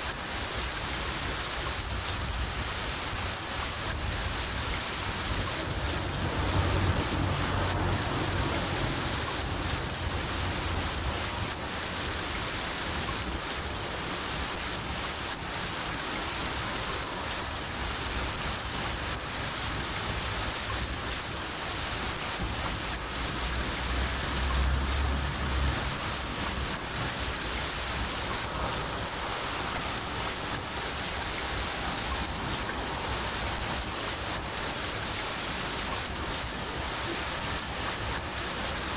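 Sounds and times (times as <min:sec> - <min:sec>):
cricket chirping: 0:00.0 - 0:38.9
rain pattering: 0:00.0 - 0:38.9
low thunder rumbling: 0:04.0 - 0:11.5.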